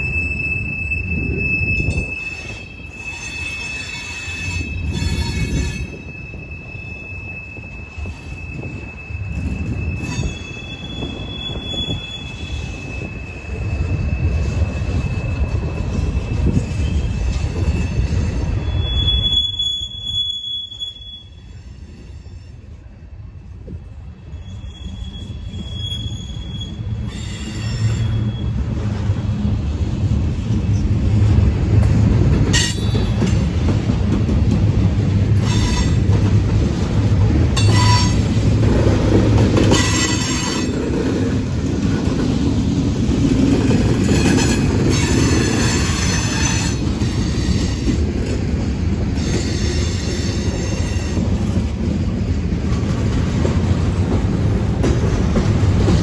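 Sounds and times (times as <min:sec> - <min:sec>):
high-pitched wheel squeals: 0:00.0 - 0:22.7, 0:24.3 - 0:28.6, 0:35.4 - 0:36.1, 0:37.6 - 0:38.3, 0:39.6 - 0:40.8, 0:44.1 - 0:48.0
wheels rumbling on rail: 0:00.0 - 0:56.0.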